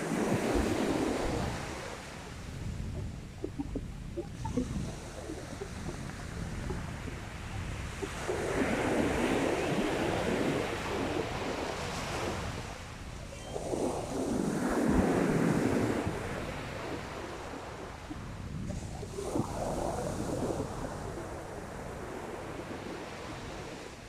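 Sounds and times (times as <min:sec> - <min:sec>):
sea waves breaking: 0:00.0 - 0:18.2
wind rumble on microphone: 0:00.0 - 0:24.0.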